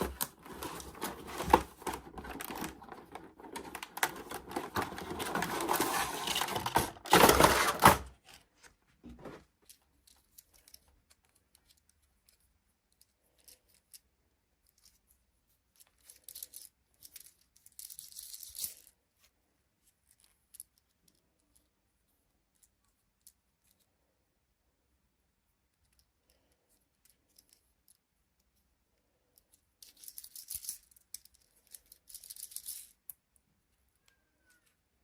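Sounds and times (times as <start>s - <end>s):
packaging rustling: 0.0s - 8.3s.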